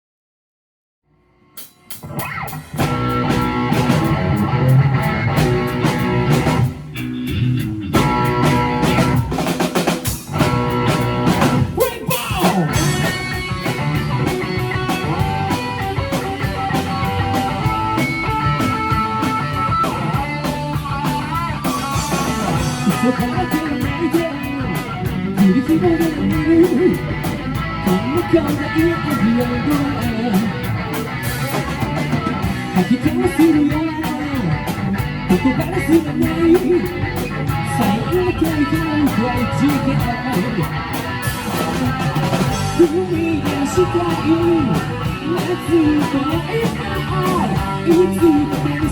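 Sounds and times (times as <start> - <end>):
rock band playing live: 1.6 - 48.9.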